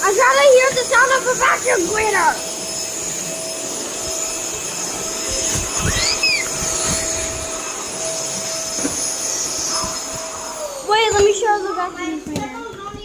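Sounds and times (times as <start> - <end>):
vacuum cleaner running: 0.0 - 13.0
high squeal: 5.1 - 12.2.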